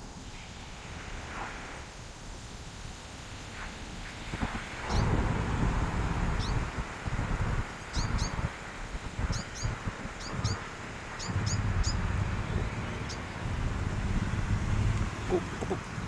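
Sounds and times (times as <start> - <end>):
wind rumble on microphone: 0.0 - 16.0
small birds chirping: 4.8 - 5.4, 6.2 - 6.8, 7.8 - 16.0.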